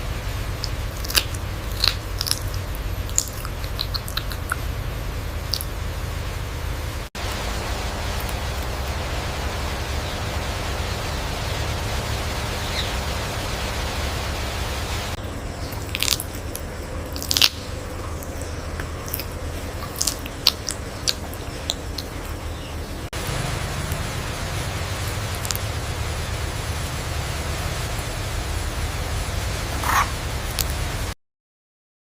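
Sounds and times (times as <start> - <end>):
steady hiss: 0.0 - 22.1, 23.0 - 31.2
sharp crunching cracks: 0.6 - 4.6, 15.7 - 22.1.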